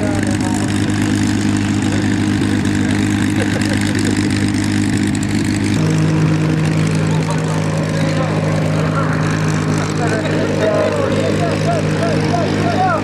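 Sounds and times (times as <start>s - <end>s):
propeller aircraft engine idling: 0.0s - 13.0s.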